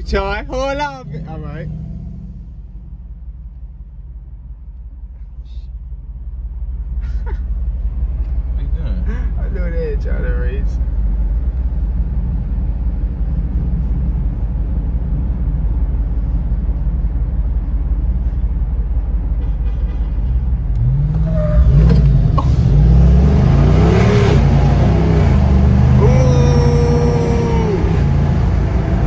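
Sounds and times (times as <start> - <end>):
car engine cruising: 0.0 - 29.0
engine accelerating through gears: 0.7 - 3.2, 20.6 - 29.0.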